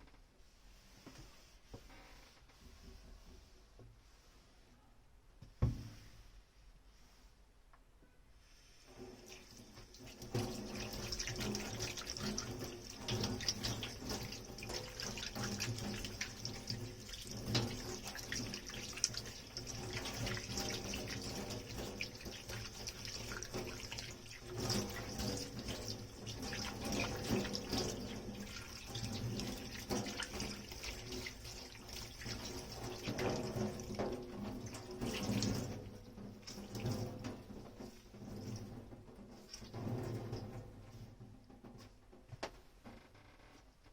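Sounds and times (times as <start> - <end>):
tap water running into sink: 8.9 - 41.0.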